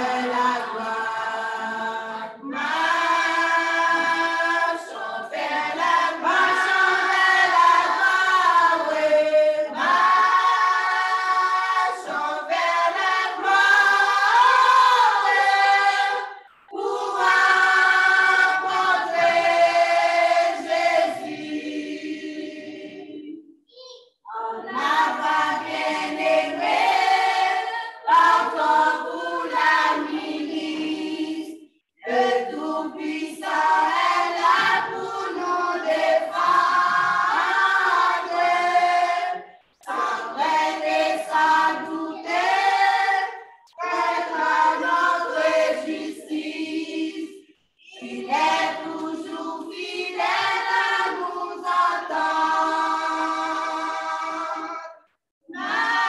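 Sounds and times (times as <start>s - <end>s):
vocal group singing a hymn: 0.0s - 23.5s, 24.3s - 56.0s.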